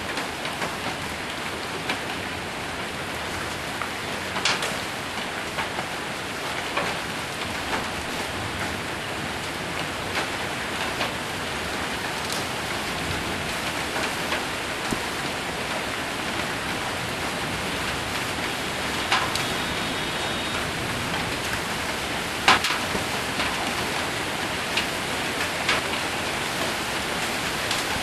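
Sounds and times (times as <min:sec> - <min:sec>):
hail and rain on a metal roof: 0:00.0 - 0:28.0
hailstones knocking: 0:18.8 - 0:19.5, 0:21.1 - 0:28.0.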